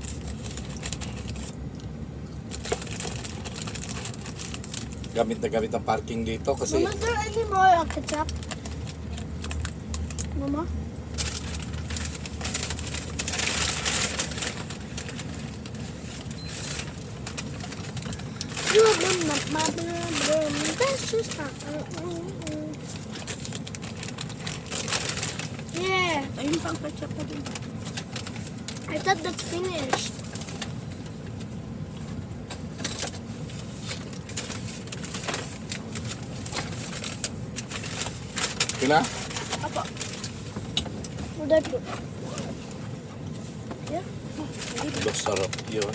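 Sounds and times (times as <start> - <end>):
food packaging crackling: 0.0 - 10.4, 11.0 - 45.9
steady low rumble: 0.0 - 45.9
faint rustles: 10.4 - 45.9.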